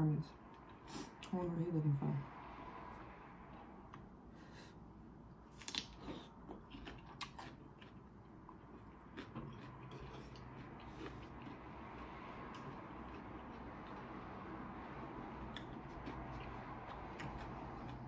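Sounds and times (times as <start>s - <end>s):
woman chewing with wet smacks: 5.6s - 14.2s, 15.4s - 18.0s.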